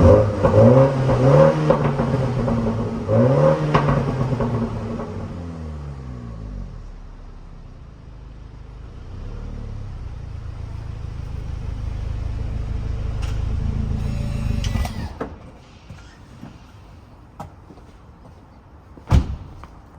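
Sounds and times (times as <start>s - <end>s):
car exhaust rumble: 0.0s - 14.7s.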